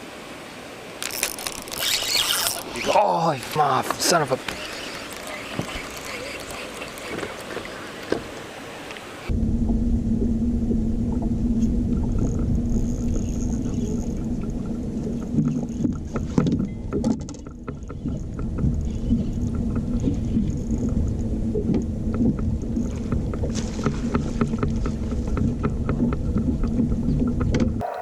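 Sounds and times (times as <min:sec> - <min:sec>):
boat motor running: 0:09.3 - 0:28.0.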